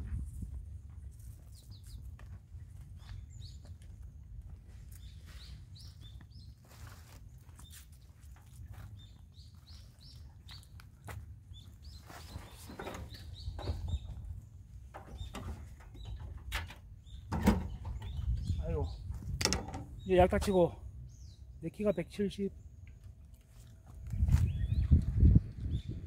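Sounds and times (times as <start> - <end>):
wind rumble on microphone: 0.0 - 5.9, 13.1 - 20.3, 23.8 - 26.0
footsteps on soil path: 0.0 - 13.4, 23.4 - 25.2
small birds chirping: 1.4 - 26.0.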